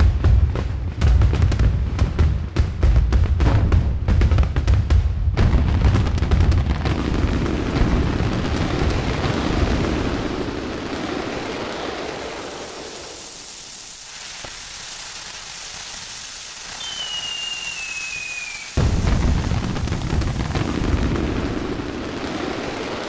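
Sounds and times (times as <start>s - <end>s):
fireworks booming: 0.0s - 23.0s
high whistle sliding down: 16.7s - 18.8s.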